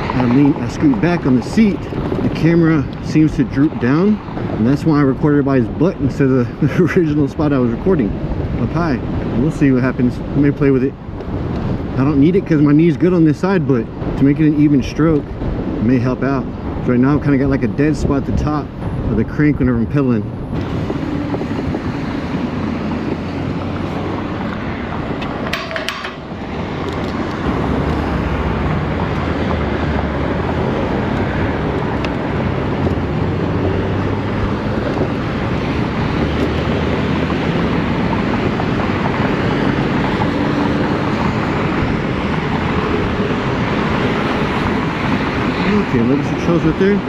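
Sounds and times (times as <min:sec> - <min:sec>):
road and tyre noise: 0:00.0 - 0:47.0
wind rushing over microphone: 0:00.0 - 0:47.0.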